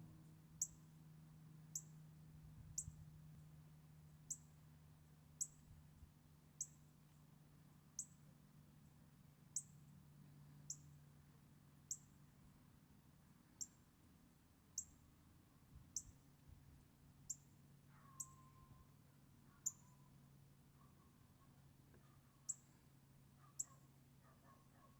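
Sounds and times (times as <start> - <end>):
faint low hum: 0.0 - 24.9
bird chip calls: 18.0 - 18.8, 19.5 - 20.1, 23.4 - 23.8.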